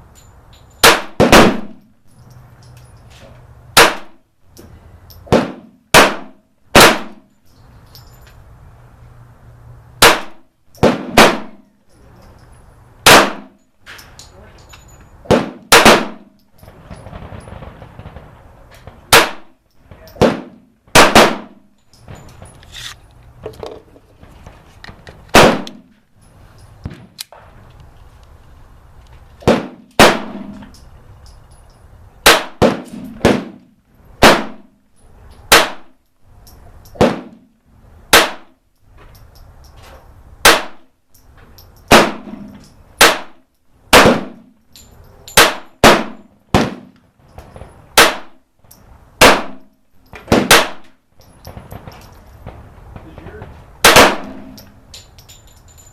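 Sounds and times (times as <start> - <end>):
pistol shots: 0.8 - 1.8, 3.8 - 4.2, 5.3 - 7.3, 10.0 - 11.6, 13.0 - 13.6, 15.2 - 16.4, 19.1 - 19.6, 20.2 - 21.7, 25.3 - 25.9, 29.4 - 30.6, 32.2 - 33.6, 34.2 - 34.8, 35.5 - 36.0, 37.0 - 37.4, 38.1 - 38.6, 40.4 - 40.9, 41.9 - 44.5, 45.4 - 47.0, 48.0 - 48.4, 49.2 - 49.7, 50.3 - 50.9, 53.8 - 54.7.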